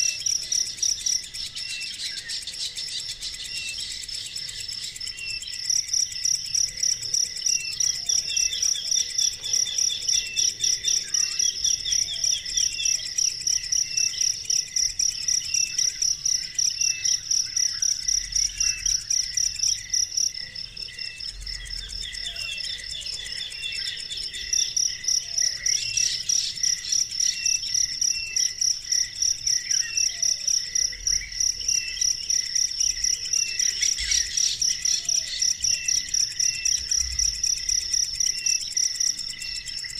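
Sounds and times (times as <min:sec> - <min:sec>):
bird chirps and trills: 0:00.0 - 0:28.6
insect chirping: 0:00.0 - 0:39.9.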